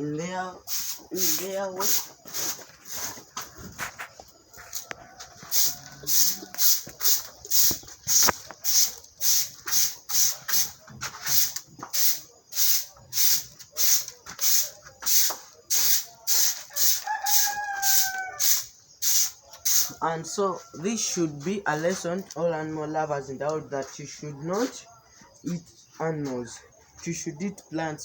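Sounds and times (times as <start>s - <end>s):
brushing strokes: 0.6s - 20.0s
rooster crowing: 4.5s - 7.7s, 16.3s - 21.8s.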